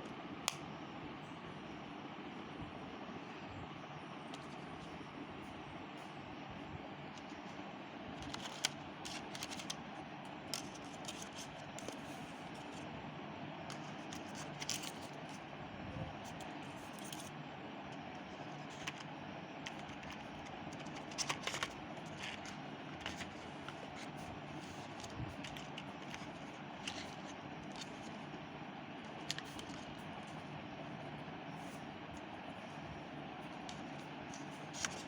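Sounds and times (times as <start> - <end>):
steady background hum: 0.0 - 35.0.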